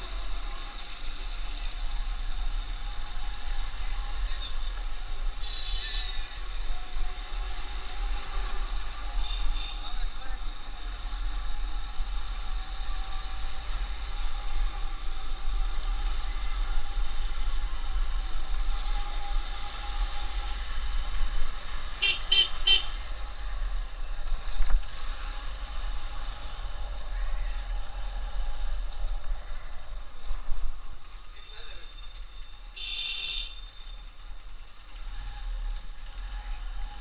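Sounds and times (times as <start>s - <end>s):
motorcycle riding on highway: 0.0s - 29.7s
vehicle horn tooting: 5.4s - 6.2s, 22.0s - 23.0s, 32.8s - 33.7s.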